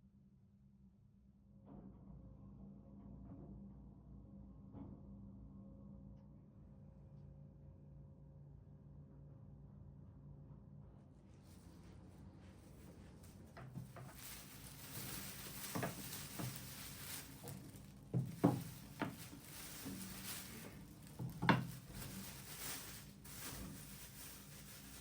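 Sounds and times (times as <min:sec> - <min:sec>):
soft taps and knocks of objects: 0:12.7 - 0:25.0.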